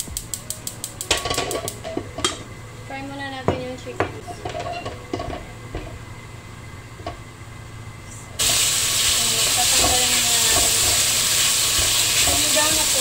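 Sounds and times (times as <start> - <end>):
chicken sizzling in hot oil: 8.4 - 13.0
spatula stirring in a pan: 9.6 - 13.0.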